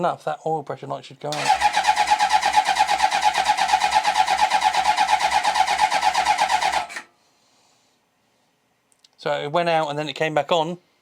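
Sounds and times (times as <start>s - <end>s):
motorcycle engine cranking: 1.4s - 7.1s.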